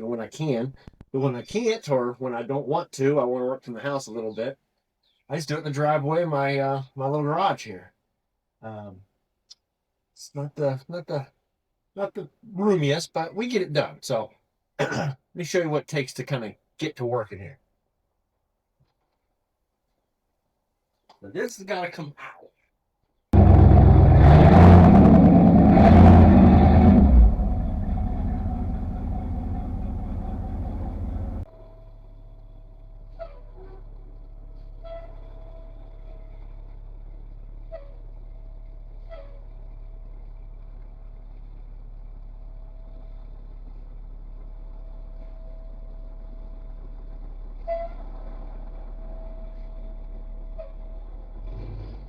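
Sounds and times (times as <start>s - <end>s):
car engine revving: 23.4s - 31.5s
engine running with whine: 23.4s - 52.0s.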